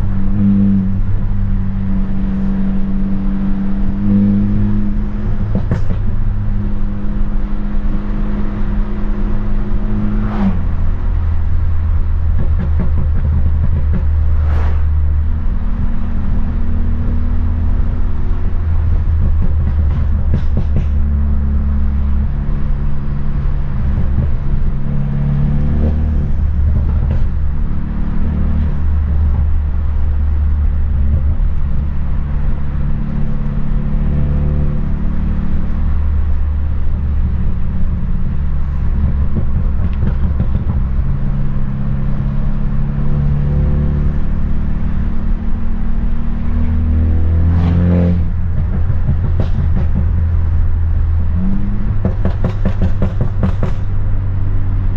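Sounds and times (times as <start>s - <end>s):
car engine and exhaust droning: 0.0s - 54.9s
exhaust crack: 10.2s - 45.4s, 46.6s - 54.6s.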